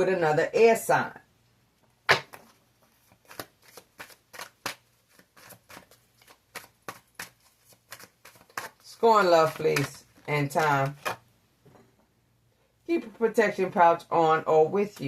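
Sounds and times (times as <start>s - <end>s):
cards being shuffled: 2.1s - 11.2s.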